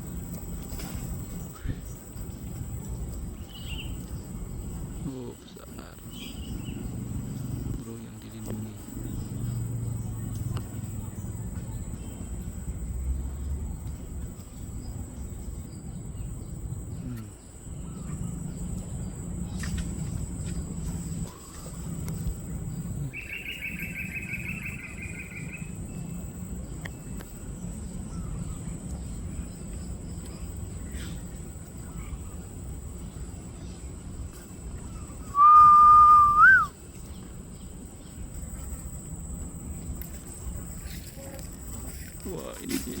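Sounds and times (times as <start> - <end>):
steady low rumble: 0.0 - 43.0
faint bird chirps: 0.1 - 13.6, 14.4 - 39.0
high-pitched insect drone: 15.4 - 36.8, 37.4 - 43.0
loud whistled note: 35.2 - 36.7.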